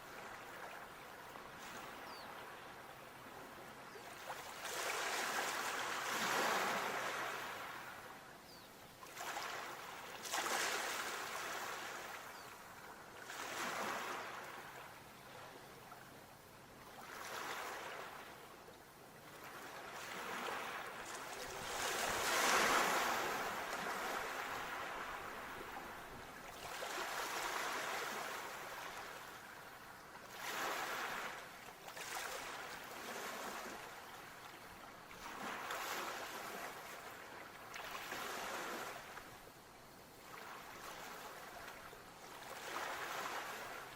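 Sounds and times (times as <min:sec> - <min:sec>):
sea waves washing in: 0:20.0 - 0:29.6.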